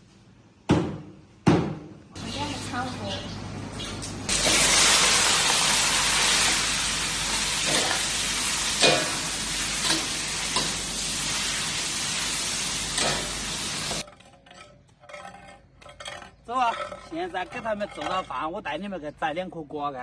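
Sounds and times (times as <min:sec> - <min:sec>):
food sizzling in a pan: 0:04.3 - 0:14.0
spatula scraping and knocking: 0:14.0 - 0:19.0.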